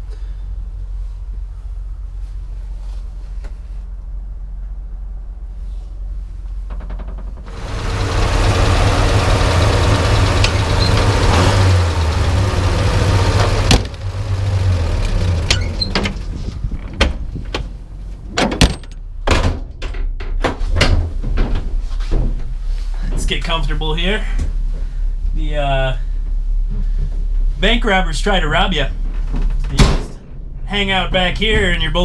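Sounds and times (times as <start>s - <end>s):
truck engine rumbling: 6.2s - 19.3s, 22.9s - 32.0s
knocks and clunks: 6.7s - 22.5s.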